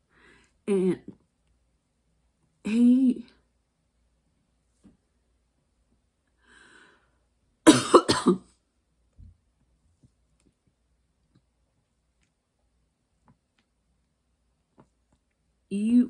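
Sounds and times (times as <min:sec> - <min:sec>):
woman coughing: 0:07.7 - 0:08.4.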